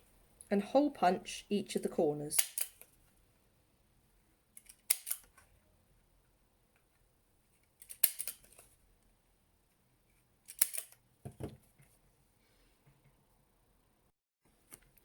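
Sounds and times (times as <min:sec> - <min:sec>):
hole punch clicking through card: 0:02.4 - 0:02.9, 0:04.6 - 0:05.3, 0:07.8 - 0:08.6, 0:10.5 - 0:11.0.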